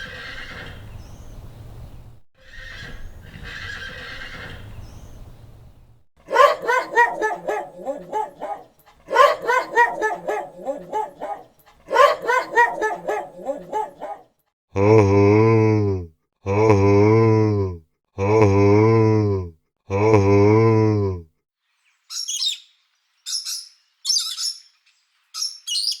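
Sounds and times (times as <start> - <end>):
horse whinnying: 0.0 - 0.8, 2.4 - 4.7.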